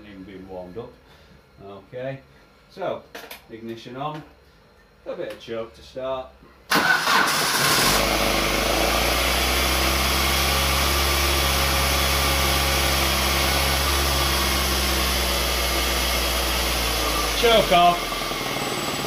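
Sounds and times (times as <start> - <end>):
car engine running on choke: 7.3 - 19.0.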